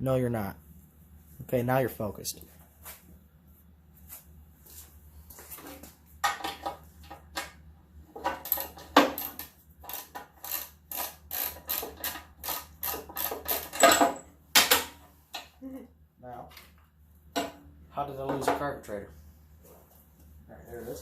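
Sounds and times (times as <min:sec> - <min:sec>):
hand tools clicking and clattering: 0:08.1 - 0:15.5
small metal parts knocking: 0:08.2 - 0:14.3.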